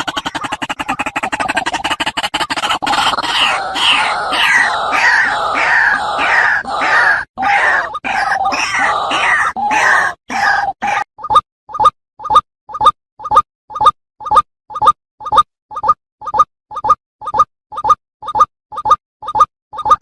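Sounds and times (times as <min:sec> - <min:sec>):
waterhen harsh calls: 0:00.0 - 0:11.0.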